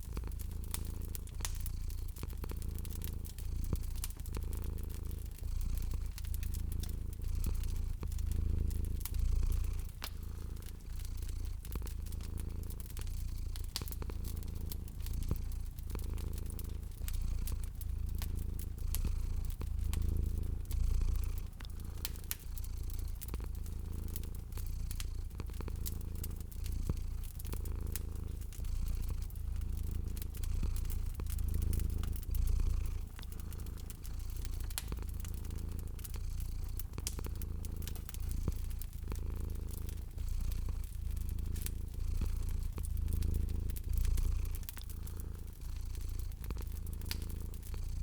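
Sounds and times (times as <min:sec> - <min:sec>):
cat purring: 0:00.0 - 0:48.0
wood fire crackling: 0:00.0 - 0:48.0.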